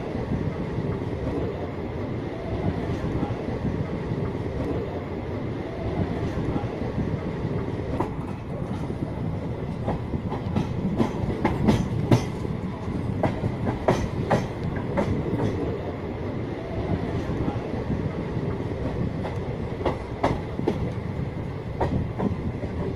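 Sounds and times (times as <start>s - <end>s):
train wheels rumbling on rails: 0.0s - 22.9s
clacks over rail joints: 9.7s - 15.7s, 18.8s - 21.0s, 21.8s - 22.9s.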